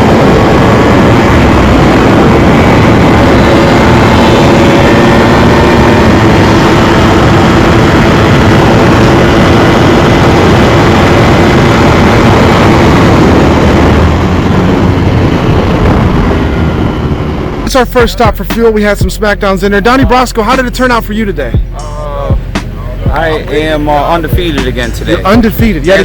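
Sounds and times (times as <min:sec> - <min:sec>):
wind rush: 0:00.0 - 0:25.9
motorcycle engine at speed: 0:00.0 - 0:26.0.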